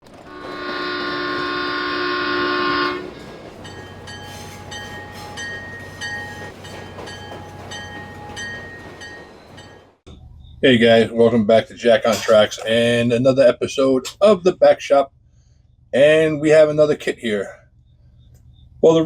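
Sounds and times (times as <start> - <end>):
locomotive horn: 0.0 - 6.6
bell ringing: 0.3 - 10.0.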